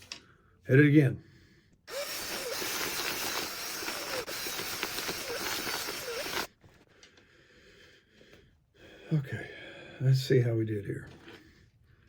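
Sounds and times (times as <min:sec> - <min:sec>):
power drill boring into plastic: 0:01.9 - 0:06.5.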